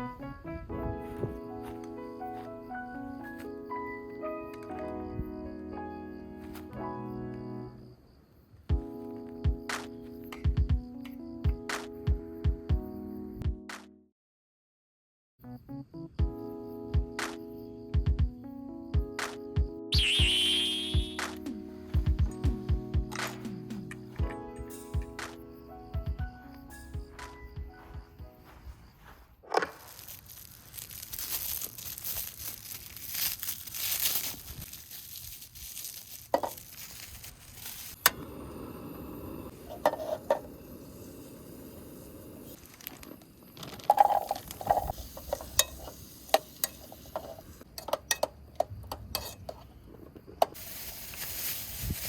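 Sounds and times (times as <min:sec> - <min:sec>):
steady hiss: 0:29.8 - 0:43.4, 0:44.2 - 0:47.6, 0:50.6 - 0:52.0.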